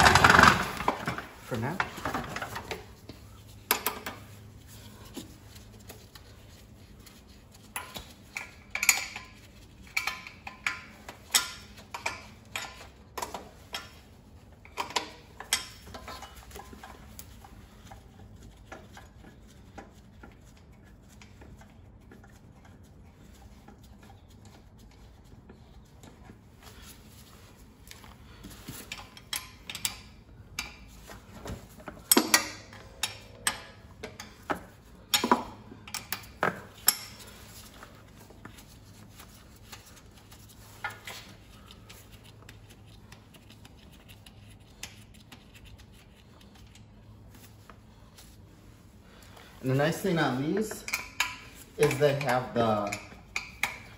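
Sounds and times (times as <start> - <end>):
metal tools and parts clinking: 49.6 - 53.9.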